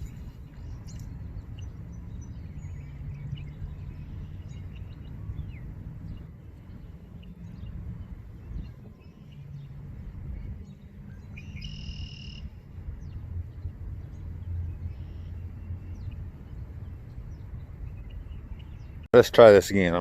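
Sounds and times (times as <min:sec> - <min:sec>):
low steady rumble: 0:00.0 - 0:20.0
bird call: 0:11.1 - 0:12.6.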